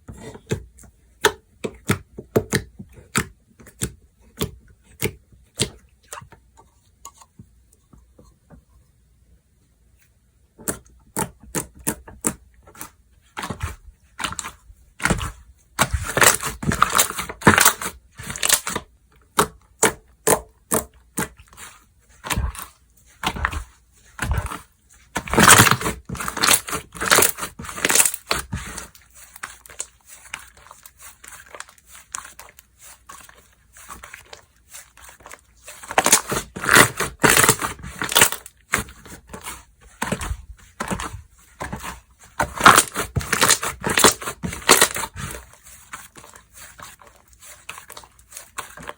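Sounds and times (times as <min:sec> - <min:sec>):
slime clicking and crackling: 0:25.2 - 0:39.4, 0:42.5 - 0:45.4.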